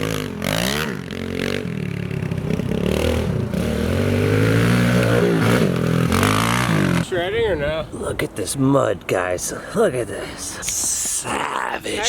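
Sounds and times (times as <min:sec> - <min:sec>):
pit bike engine revving: 0:00.0 - 0:07.2.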